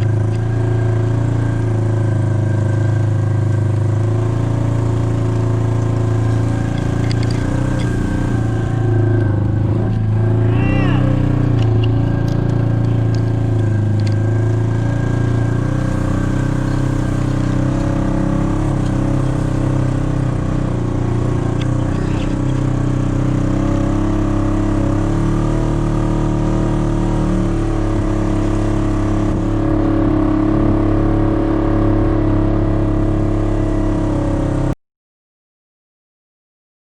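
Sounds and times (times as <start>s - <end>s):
engine running steadily: 0.0s - 34.8s.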